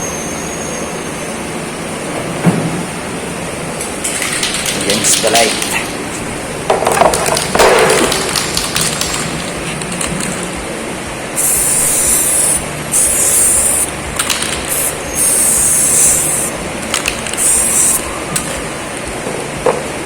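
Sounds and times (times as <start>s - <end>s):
spray paint hissing: 7.1s - 10.6s, 11.3s - 19.0s.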